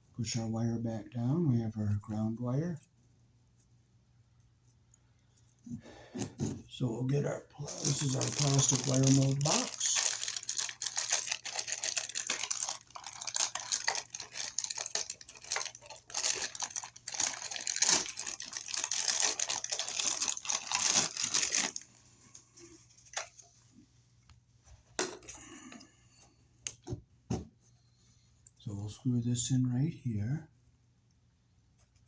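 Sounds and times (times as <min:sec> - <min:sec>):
plastic crinkling and rustling: 0:07.2 - 0:23.6.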